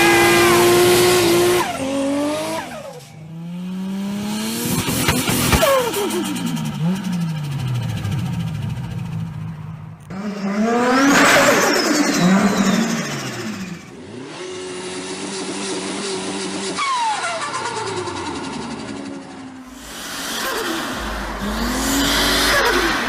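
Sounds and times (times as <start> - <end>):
turbo car engine revving: 0.0 - 23.0
turbo whistle and flutter: 11.1 - 13.9, 19.6 - 23.0
engine idling: 17.7 - 23.0.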